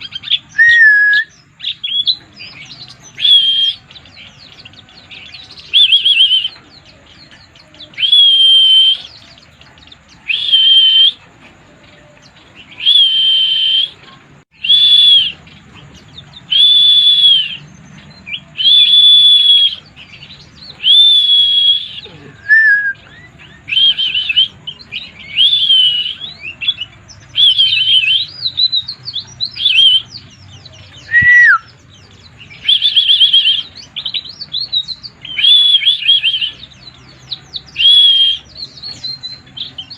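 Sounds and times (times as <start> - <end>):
bird singing whistled phrases: 0.0 - 11.3, 12.6 - 39.9
bird twittering: 0.0 - 39.9.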